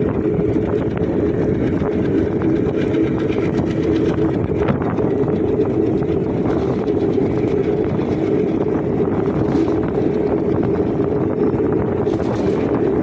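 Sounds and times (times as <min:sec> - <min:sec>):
train wheels rumbling on rails: 0:00.0 - 0:13.0
wind buffeting microphone: 0:00.0 - 0:13.0.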